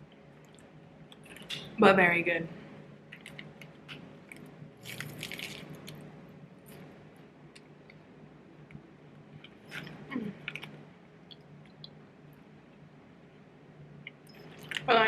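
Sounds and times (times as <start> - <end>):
person chewing flaky pastry: 3.1 - 6.1, 9.4 - 11.9.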